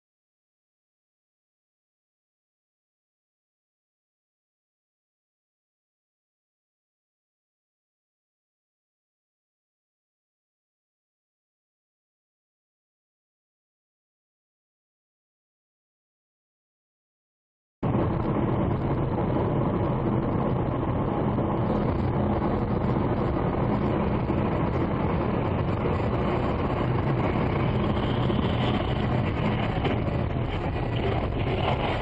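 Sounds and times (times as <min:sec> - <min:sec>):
vehicle engine and road rumble: 0:17.8 - 0:32.0.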